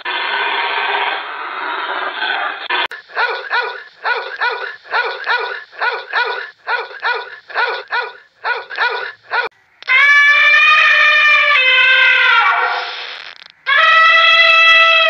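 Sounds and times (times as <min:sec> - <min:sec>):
puppy yapping: 0:03.1 - 0:11.0.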